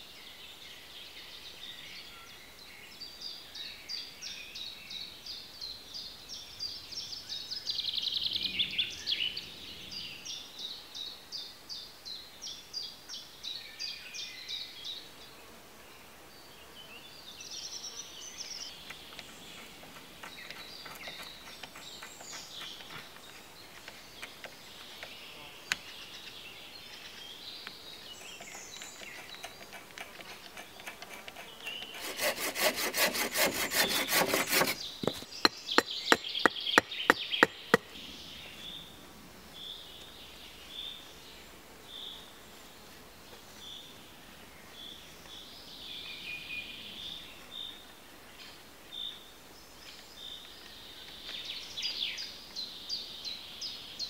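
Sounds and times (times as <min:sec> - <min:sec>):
birds chirping: 0:16.4 - 0:42.7
hand drill boring into wood: 0:29.0 - 0:35.2.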